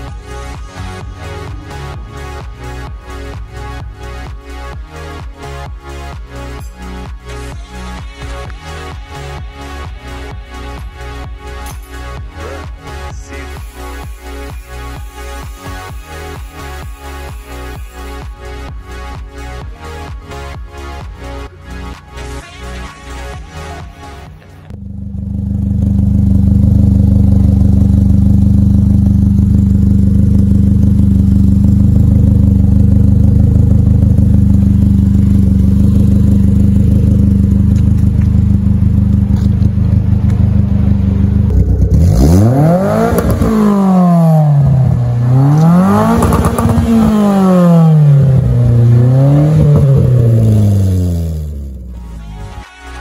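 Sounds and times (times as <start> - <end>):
car engine idling: 24.4 - 52.0
car engine revving: 24.7 - 51.9.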